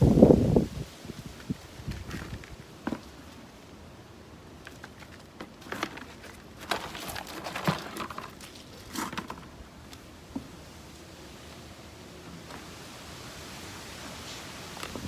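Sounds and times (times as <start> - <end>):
soil rustling and scraping: 0.1 - 11.7.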